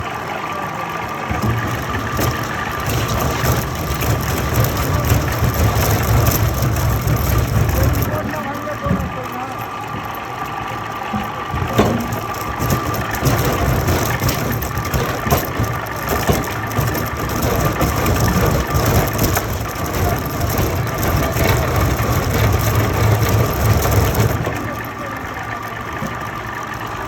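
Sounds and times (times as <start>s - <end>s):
machine motor drone: 0.0s - 27.0s
wood cracking and snapping: 1.3s - 9.3s, 11.0s - 26.9s.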